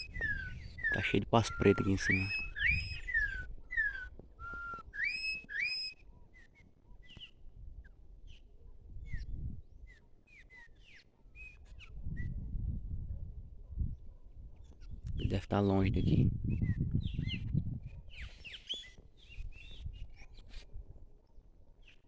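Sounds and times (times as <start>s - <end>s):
flock of birds chirping: 0.0s - 8.5s, 9.1s - 12.0s, 17.0s - 20.7s
whistled birdsong: 0.0s - 13.0s, 13.6s - 22.0s.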